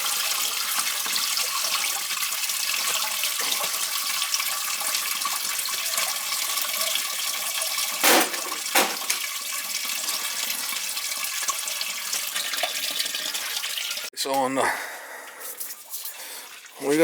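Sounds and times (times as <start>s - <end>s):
water rushing through pipes: 0.0s - 14.1s, 15.3s - 17.0s
pipe knocks: 8.0s - 9.2s.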